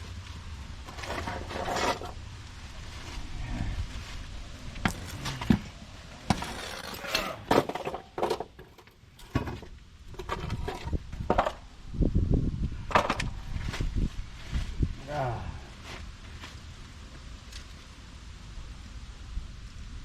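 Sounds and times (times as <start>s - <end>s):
wind buffeting microphone: 10.0s - 15.6s.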